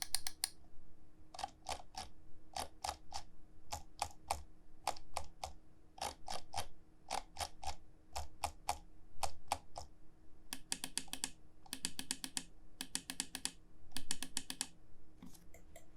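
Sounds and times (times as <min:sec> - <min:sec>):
mouse buttons clicking: 0:00.0 - 0:00.6, 0:10.6 - 0:15.9.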